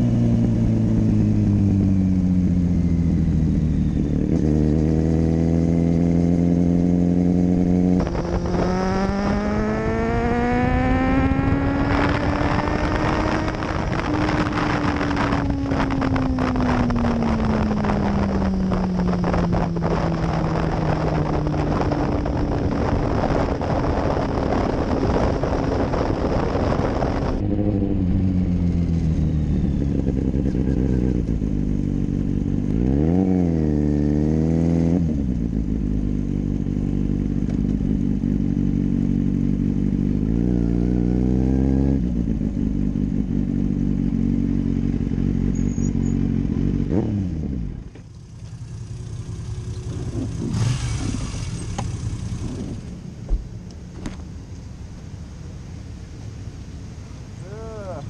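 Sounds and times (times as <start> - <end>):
motorcycle engine revving: 0.0 - 54.4
wind rush on microphone: 4.3 - 31.8.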